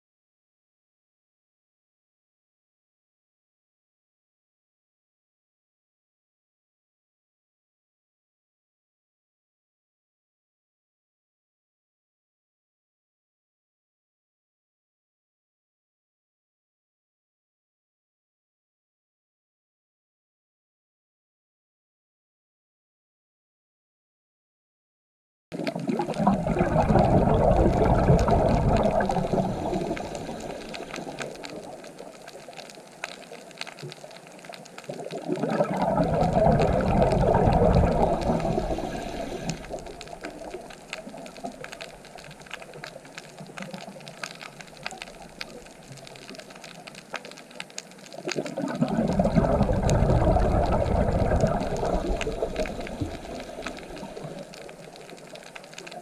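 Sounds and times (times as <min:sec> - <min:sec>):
crackle of small clicks: 0:25.5 - 0:56.0
water surging: 0:25.6 - 0:56.0.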